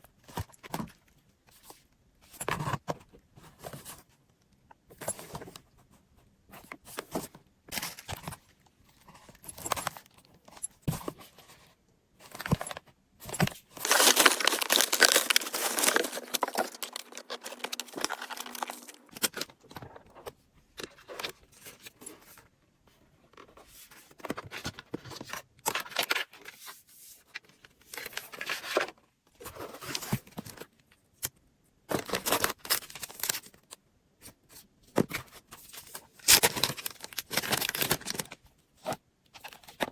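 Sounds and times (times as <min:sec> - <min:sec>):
packaging rustling: 0:12.3 - 0:19.9, 0:36.2 - 0:38.4
packaging tearing: 0:13.8 - 0:19.4, 0:36.2 - 0:38.3.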